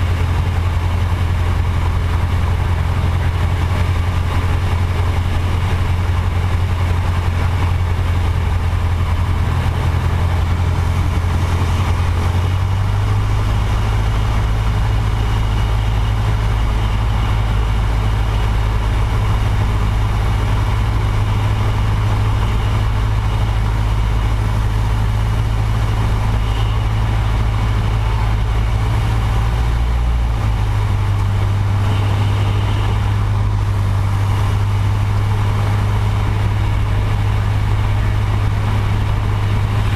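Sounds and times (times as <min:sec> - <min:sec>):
small aircraft engine droning: 0:00.0 - 0:39.9.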